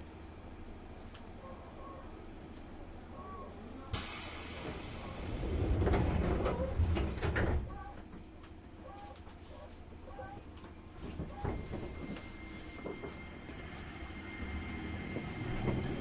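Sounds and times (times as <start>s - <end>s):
compressed air hiss: 4.0s - 5.4s
sliding doors closing: 4.0s - 7.9s, 11.1s - 16.0s.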